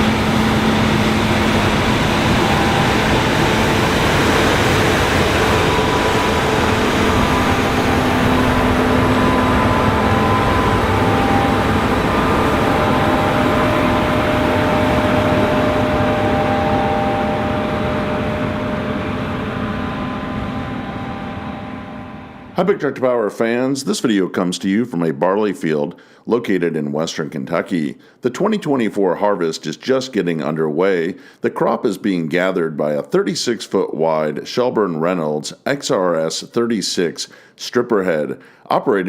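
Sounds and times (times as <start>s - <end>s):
combine harvester running: 0.0s - 22.6s.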